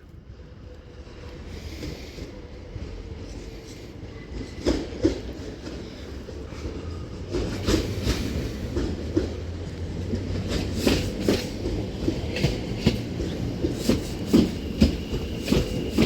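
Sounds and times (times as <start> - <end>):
train low rumble: 0.0 - 16.0
wheels clacking over rails: 4.6 - 16.0.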